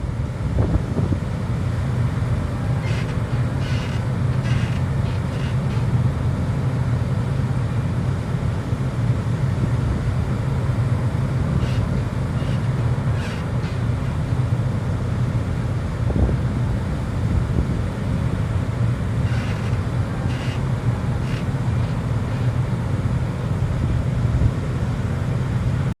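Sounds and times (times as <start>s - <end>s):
ferry engine rumble: 0.0s - 26.0s
wind: 0.0s - 26.0s
high squeaks or creaks: 2.8s - 5.8s, 11.6s - 13.8s, 19.2s - 20.6s.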